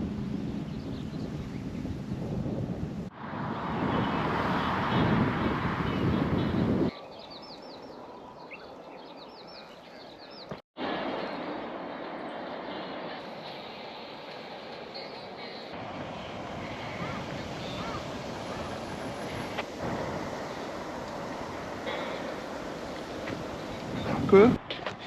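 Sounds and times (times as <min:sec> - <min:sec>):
loud rushing noise: 0:03.1 - 0:06.9, 0:15.7 - 0:24.6
bird chirping: 0:05.9 - 0:10.6.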